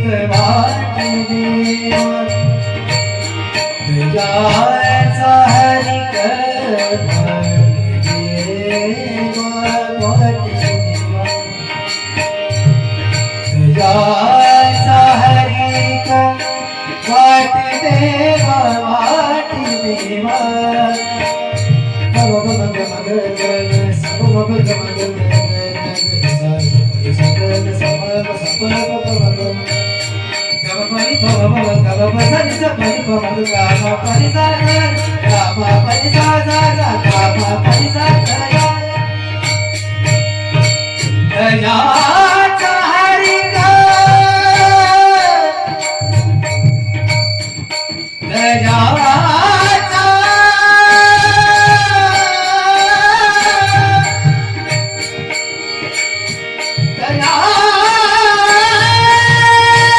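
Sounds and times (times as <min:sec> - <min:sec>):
held melody line: 0:00.0 - 0:59.9
tabla rhythm: 0:00.0 - 0:59.9
hand cymbals ringing: 0:00.3 - 0:59.9.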